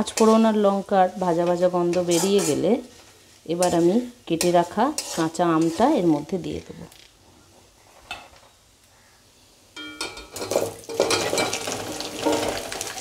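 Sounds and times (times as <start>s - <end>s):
stirring in a pan: 0.0s - 6.7s, 10.1s - 13.0s
loud sizzling of frying: 0.0s - 6.9s, 8.5s - 13.0s.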